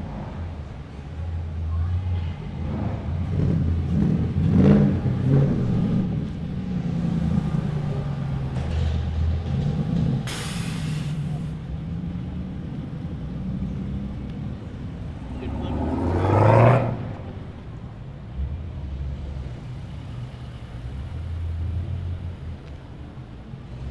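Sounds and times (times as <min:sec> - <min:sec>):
cars revving and passing: 0:00.0 - 0:23.9
sharp hiss: 0:10.3 - 0:11.6.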